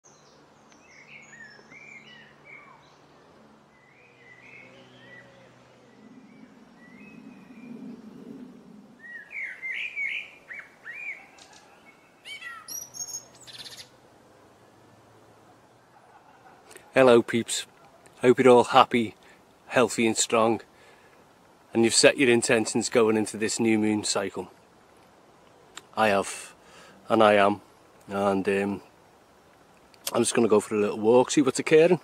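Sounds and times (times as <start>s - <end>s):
small birds chirping and singing: 0.0s - 14.0s
faint low hum: 0.4s - 9.4s.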